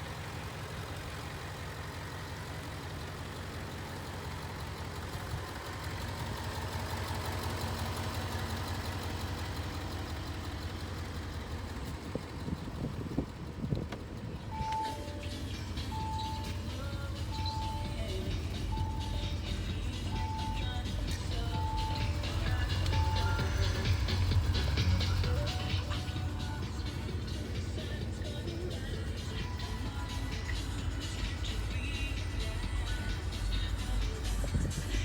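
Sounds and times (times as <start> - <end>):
car engine idling: 0.0 - 35.0
short beep: 14.6 - 20.8.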